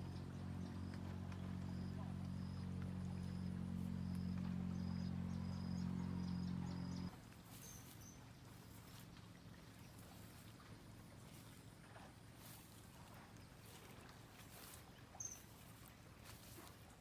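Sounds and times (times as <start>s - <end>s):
motor humming: 0.0s - 9.0s.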